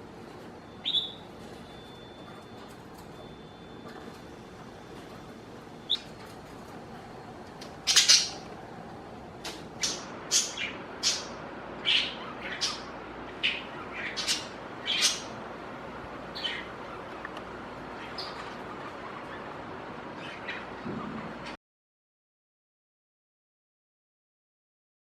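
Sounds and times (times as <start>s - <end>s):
budgerigar chirps: 0.8s - 1.2s, 5.9s - 6.2s, 7.8s - 8.5s, 9.4s - 15.4s, 16.3s - 17.1s
budgerigar calling: 0.8s - 1.3s, 5.8s - 6.3s, 7.6s - 8.7s, 9.4s - 15.4s, 16.2s - 20.8s.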